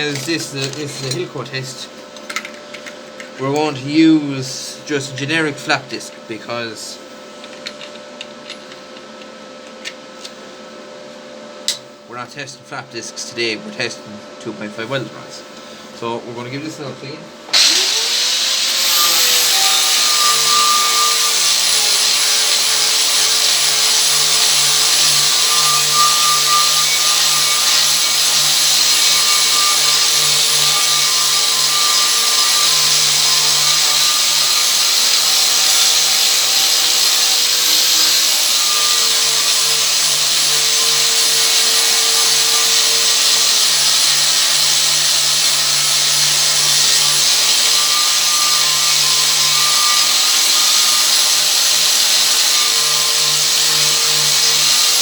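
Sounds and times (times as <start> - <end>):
angle grinder grinding steel: 0.0 - 1.6, 17.5 - 55.0.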